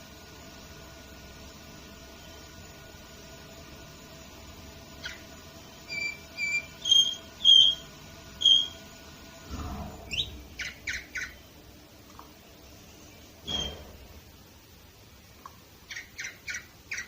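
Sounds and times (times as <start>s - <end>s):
canary calling: 5.0s - 5.2s, 5.9s - 8.8s, 10.1s - 11.5s, 15.9s - 17.0s.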